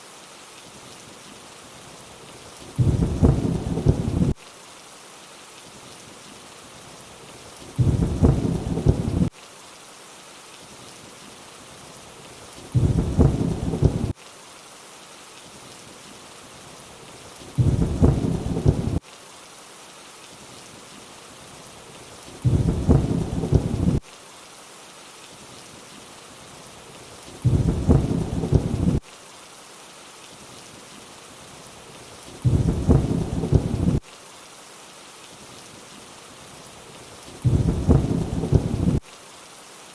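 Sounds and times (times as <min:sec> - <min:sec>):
steady rainfall hiss: 0:00.0 - 0:39.9
low rumble of thunder: 0:02.8 - 0:04.4, 0:07.8 - 0:09.3, 0:12.7 - 0:14.1, 0:17.6 - 0:19.0, 0:22.4 - 0:24.0, 0:27.4 - 0:29.0, 0:32.4 - 0:34.0, 0:37.4 - 0:39.0.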